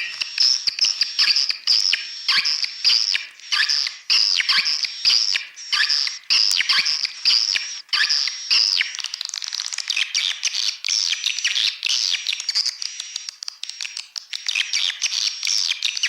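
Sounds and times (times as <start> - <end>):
swiftlet flock twittering: 0.0 - 8.9.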